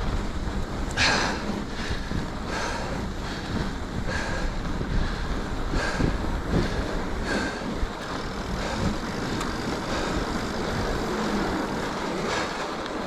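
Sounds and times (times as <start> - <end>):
bike knocks and rattles: 0.0 - 13.0
bike tyres rumbling on snow: 0.0 - 13.0
wind on microphone: 0.0 - 13.0.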